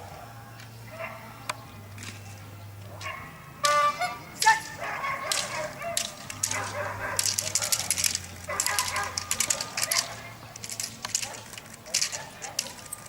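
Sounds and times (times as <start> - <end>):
dog barking: 0.2 - 1.3, 2.9 - 3.4, 4.7 - 10.4, 11.2 - 12.9.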